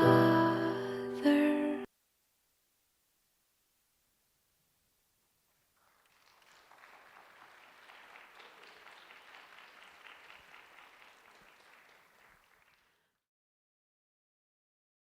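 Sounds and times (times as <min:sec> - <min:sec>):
faint audience applause: 0:05.7 - 0:13.2.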